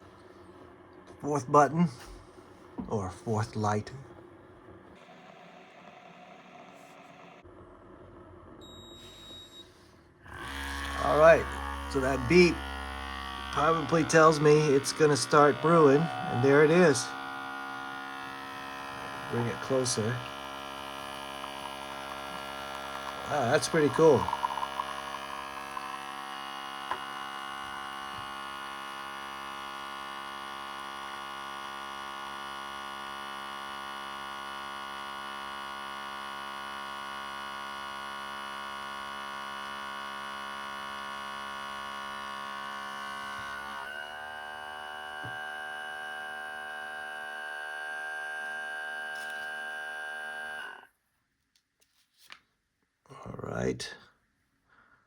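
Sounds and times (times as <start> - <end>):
espresso machine pump buzzing: 4.9 - 7.5, 10.3 - 51.0.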